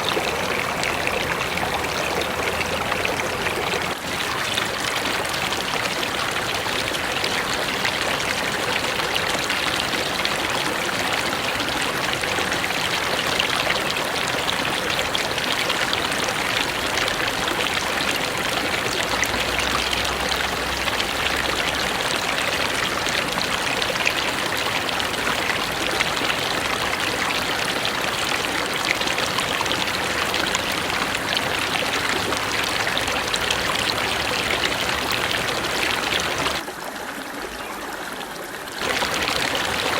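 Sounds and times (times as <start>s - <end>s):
river rushing over rocks: 24.6s - 36.6s, 38.8s - 39.9s.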